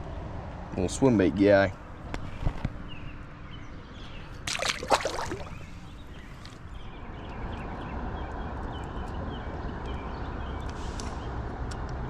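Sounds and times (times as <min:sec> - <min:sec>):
short water splash: 0:04.4 - 0:06.6
river water rushing: 0:04.5 - 0:06.5.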